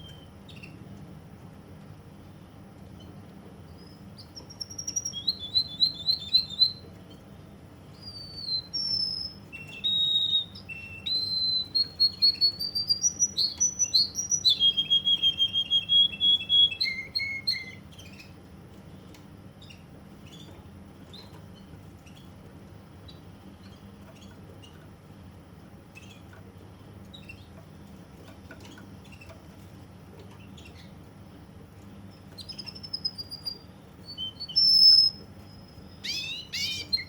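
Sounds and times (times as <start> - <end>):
canary singing: 0.0 - 0.8, 2.8 - 18.5, 19.4 - 31.1, 32.0 - 37.0.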